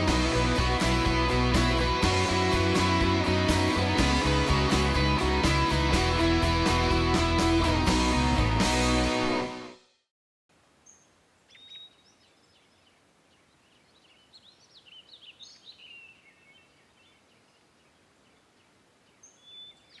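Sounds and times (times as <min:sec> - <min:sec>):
low outdoor hiss: 0:10.5 - 0:20.0
small birds chirping: 0:10.8 - 0:20.0.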